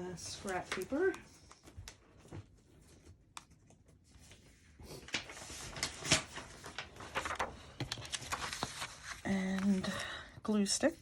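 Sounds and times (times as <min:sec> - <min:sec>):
paper rustling and crinkling: 0:00.1 - 0:10.2.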